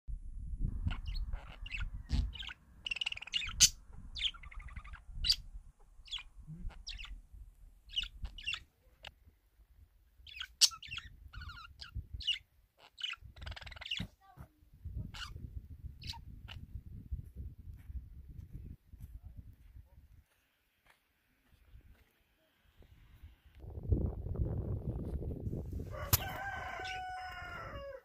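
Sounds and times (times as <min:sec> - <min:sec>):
small birds chirping: 0:00.6 - 0:17.1, 0:18.5 - 0:23.6.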